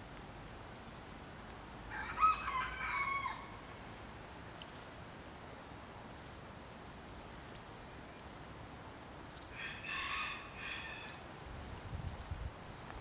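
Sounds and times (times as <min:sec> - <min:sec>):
faint background noise: 0:00.0 - 0:13.0.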